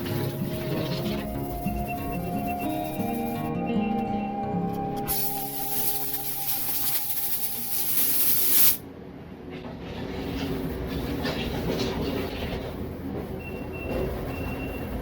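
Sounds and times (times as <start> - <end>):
loud steady hiss: 5.1 - 8.8
faint clatter: 9.5 - 13.3
vehicle reversing beeper: 13.4 - 15.0.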